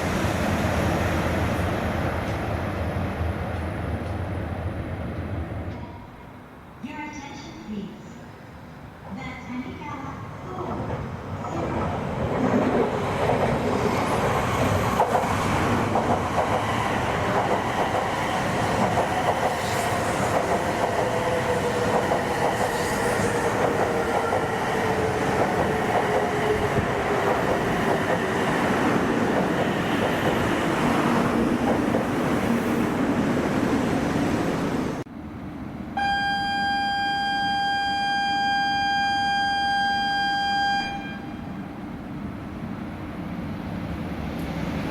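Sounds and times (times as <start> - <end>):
train rushing past: 0.0 - 5.8, 9.0 - 36.1, 40.9 - 44.9
high horn-like tone: 36.0 - 41.5.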